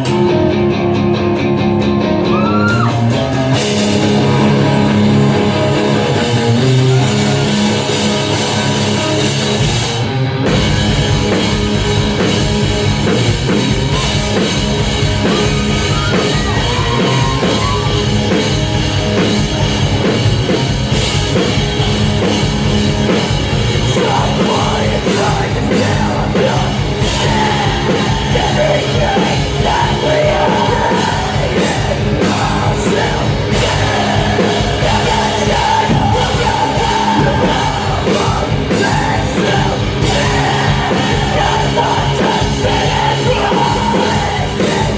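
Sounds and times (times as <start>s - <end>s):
bass guitar: 0.0s - 44.9s
drums: 0.0s - 44.9s
electric guitar: 0.0s - 44.9s
person singing: 23.8s - 44.9s.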